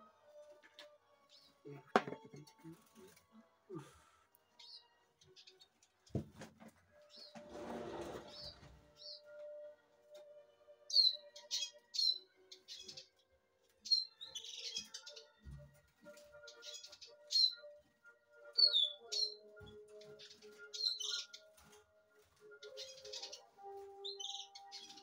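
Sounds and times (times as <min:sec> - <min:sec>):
birds chirping: 0:10.9 - 0:13.2, 0:13.8 - 0:15.4, 0:16.3 - 0:21.8, 0:22.4 - 0:25.0.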